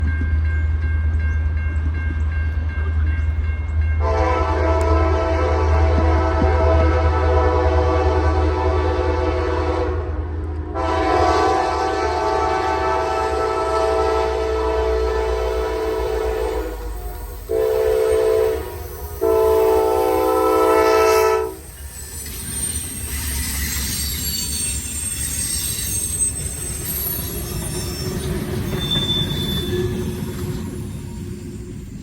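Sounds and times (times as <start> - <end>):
train rumbling past: 0.0 - 32.0
locomotive horn blasts: 4.0 - 21.6
wheels squealing: 21.1 - 32.0.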